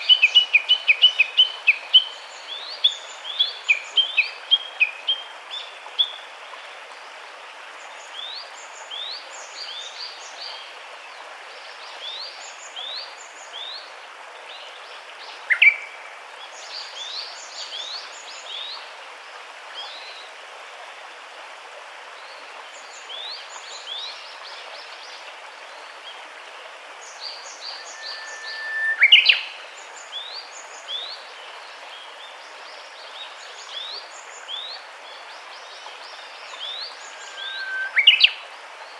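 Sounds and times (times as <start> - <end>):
background hiss: 0.0 - 38.9
loud single bird calls: 27.8 - 29.4, 37.2 - 38.3
birds chirping: 36.6 - 38.3.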